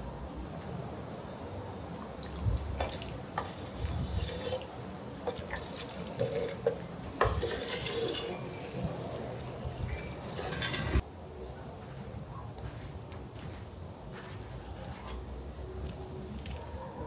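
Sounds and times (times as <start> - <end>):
water trickling and splashing: 1.9 - 11.0.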